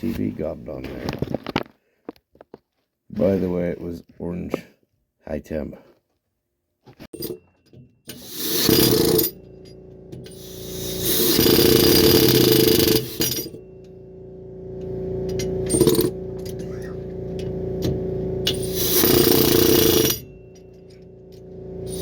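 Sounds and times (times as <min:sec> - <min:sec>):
impact wrench bursts: 0:08.1 - 0:14.3, 0:15.3 - 0:22.0
steady hum: 0:08.2 - 0:22.0.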